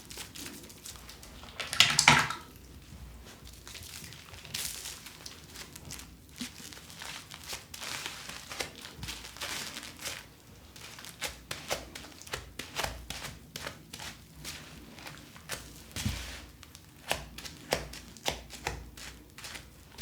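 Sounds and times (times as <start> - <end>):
plastic packaging crinkling: 3.5 - 12.4.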